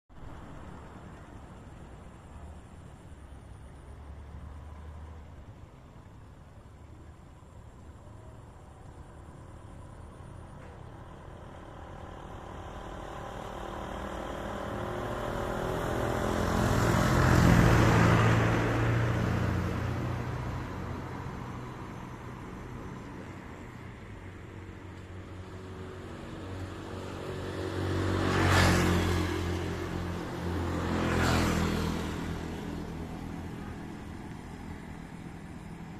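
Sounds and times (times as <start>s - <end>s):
vehicle engine passing: 11.0s - 35.9s.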